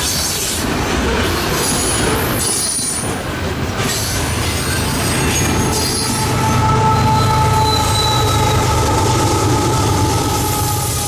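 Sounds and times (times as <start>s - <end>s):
freight train rumbling: 0.0s - 11.0s
two-tone wheel squeal: 4.5s - 11.0s.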